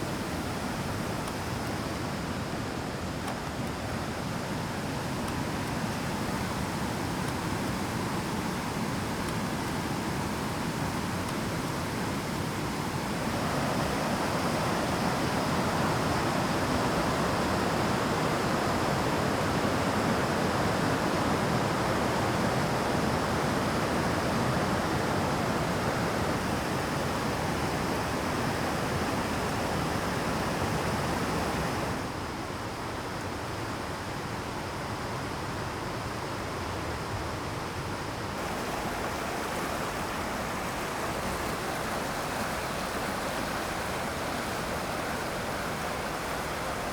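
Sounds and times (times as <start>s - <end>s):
water rushing over rocks: 38.4s - 46.9s.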